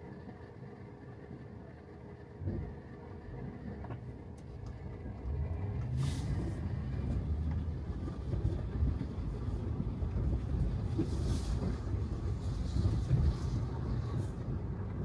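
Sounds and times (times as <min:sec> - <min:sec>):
tyres rolling on wet pavement: 0:03.4 - 0:15.0.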